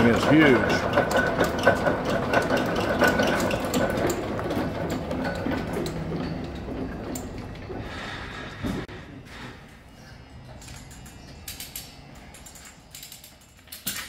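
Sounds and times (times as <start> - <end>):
machine clattering rhythmically: 0.0 - 7.9.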